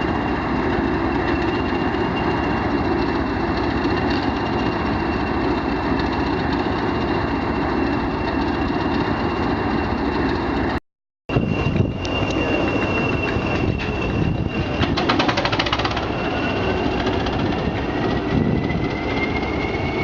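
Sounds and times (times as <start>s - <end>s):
high-pitched whine: 0.0s - 15.2s
diesel locomotive engine running: 0.0s - 20.0s.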